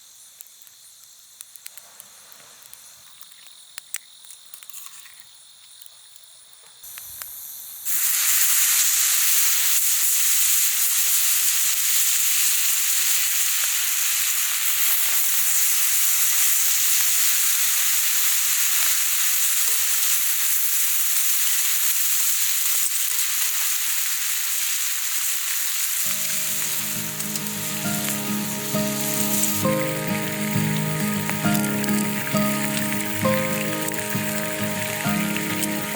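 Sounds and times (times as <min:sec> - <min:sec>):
meat sizzling on grill: 0:00.1 - 0:35.9
background music: 0:26.1 - 0:35.9.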